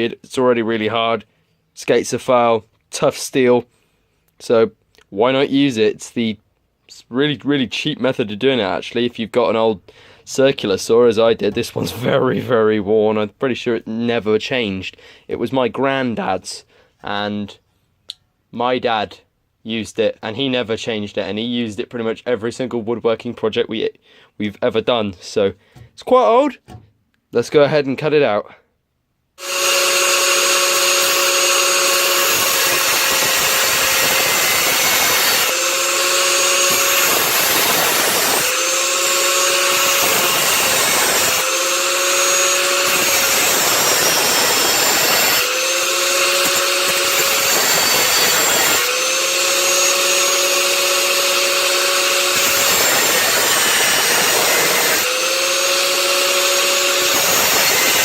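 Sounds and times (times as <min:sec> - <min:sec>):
electric grinder cutting steel: 0:29.4 - 0:58.0.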